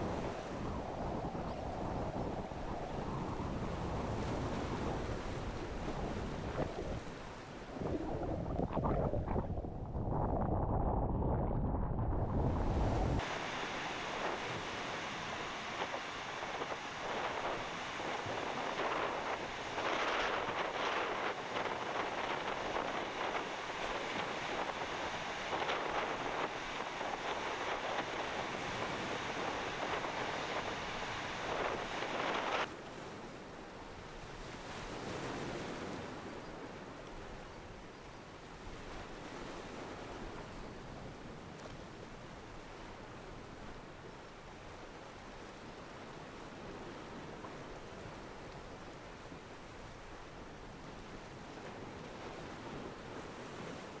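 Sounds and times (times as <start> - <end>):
wind buffeting microphone: 0.0 - 32.7.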